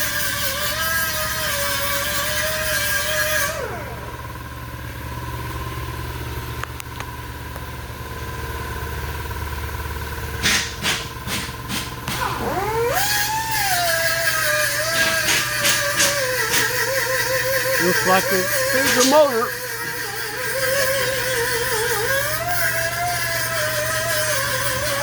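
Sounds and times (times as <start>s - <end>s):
engine blips: 3.5s - 25.0s.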